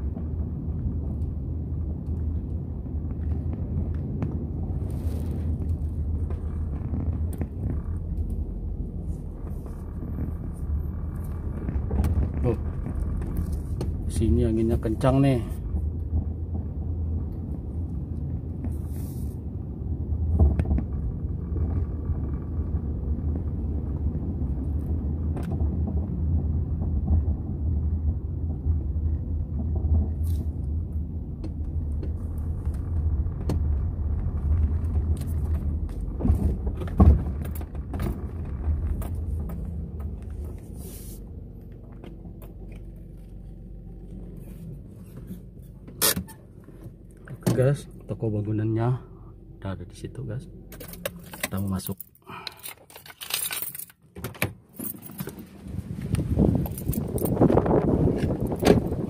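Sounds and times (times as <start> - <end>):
wind buffeting microphone: 55.5 - 59.0.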